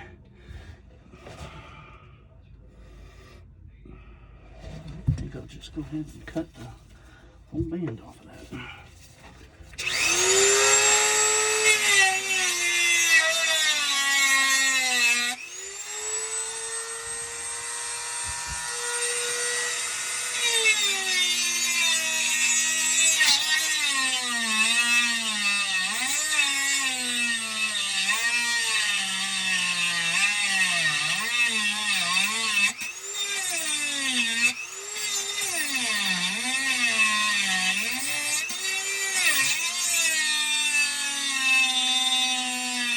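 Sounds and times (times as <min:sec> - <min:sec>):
power saw cutting metal: 0:09.8 - 0:42.9.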